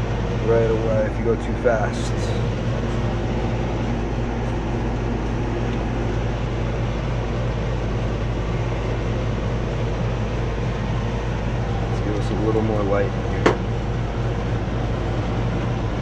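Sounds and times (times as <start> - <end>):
air conditioner blower drone: 0.0 - 16.0.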